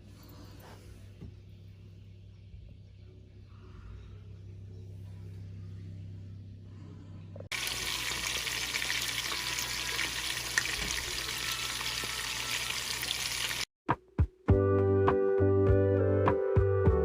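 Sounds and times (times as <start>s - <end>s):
music: 0.0s - 7.4s, 9.2s - 13.1s, 13.9s - 17.0s
low hum: 0.0s - 8.0s
food sizzling in hot oil: 7.5s - 13.7s.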